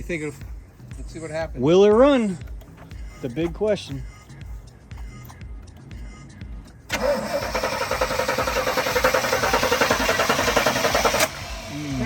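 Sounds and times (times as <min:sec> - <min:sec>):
starter cranking engine: 0:06.9 - 0:12.0.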